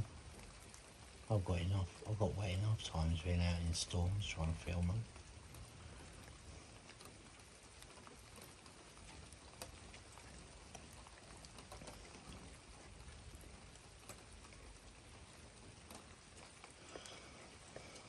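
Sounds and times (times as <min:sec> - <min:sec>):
faint steady rain: 0:00.0 - 0:18.0.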